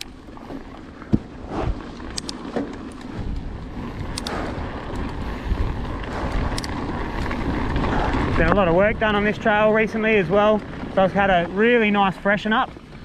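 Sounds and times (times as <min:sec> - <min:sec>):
bike clicks and knocks: 0:00.0 - 0:08.7
bike tyres over dirt and rocks: 0:00.0 - 0:13.0
wind on microphone: 0:03.0 - 0:11.6.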